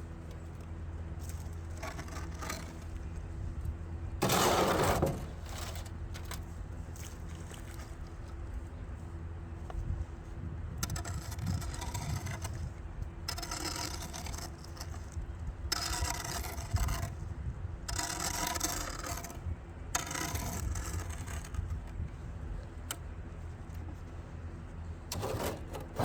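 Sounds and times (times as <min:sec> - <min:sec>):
shovel scraping wet concrete: 0:01.7 - 0:02.9, 0:04.2 - 0:06.4, 0:13.3 - 0:15.1, 0:15.7 - 0:17.1, 0:17.9 - 0:19.4, 0:20.0 - 0:21.7, 0:25.1 - 0:26.0.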